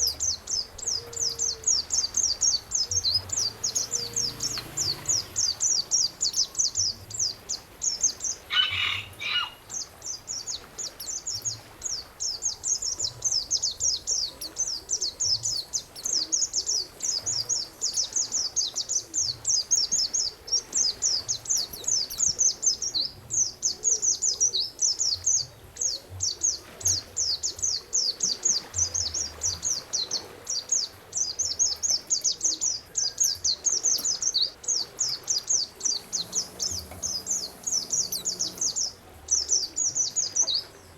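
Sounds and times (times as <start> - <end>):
songbird chirping: 0.0 - 40.9.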